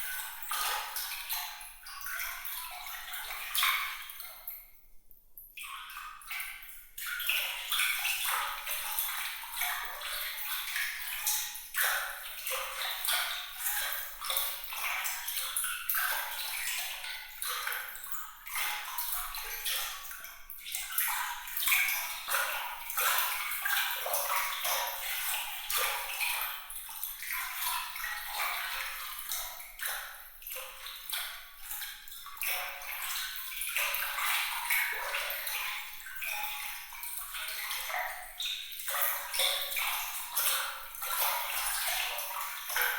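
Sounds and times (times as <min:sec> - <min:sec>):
water trickling and splashing: 0:00.0 - 0:04.8, 0:05.6 - 0:42.9.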